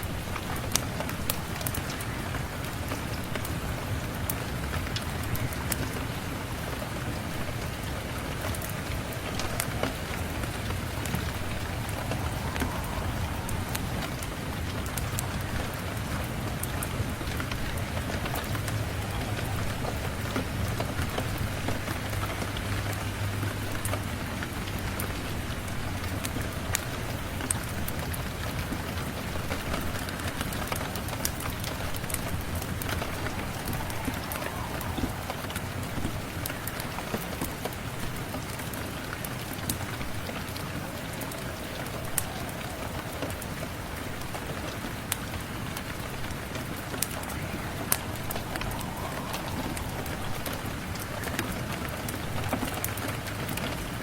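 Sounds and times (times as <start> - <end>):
rain falling on a surface: 0.0 - 54.0
wood fire crackling and popping: 0.1 - 54.0
low rumble: 9.4 - 21.6, 31.4 - 37.2, 46.2 - 52.7.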